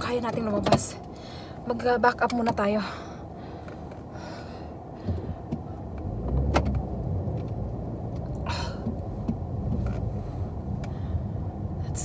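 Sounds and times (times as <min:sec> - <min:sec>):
car engine revving: 0:05.7 - 0:12.0.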